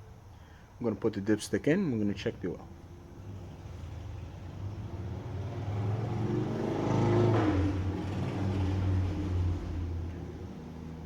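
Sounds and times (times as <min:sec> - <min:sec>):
motor vehicle passing by: 0:02.8 - 0:11.0.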